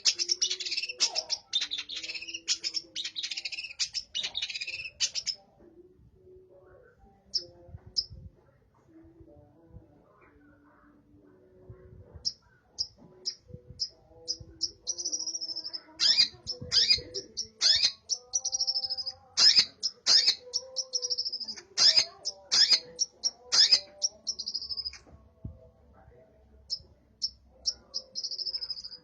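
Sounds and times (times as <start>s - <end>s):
bird singing chirps and trills: 0.0s - 5.6s, 7.0s - 8.3s, 12.1s - 25.2s, 26.7s - 29.0s.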